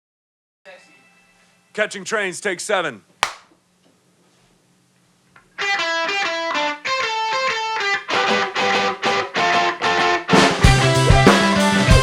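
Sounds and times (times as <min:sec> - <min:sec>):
sharp click: 0:03.2 - 0:03.5.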